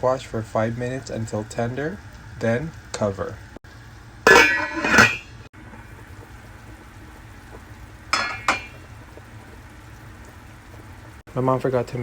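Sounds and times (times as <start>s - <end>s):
low steady hiss: 0.0s - 12.0s
cookware clattering: 4.3s - 5.4s, 8.1s - 8.8s
pot lid clinking: 4.3s - 5.4s, 8.1s - 8.8s.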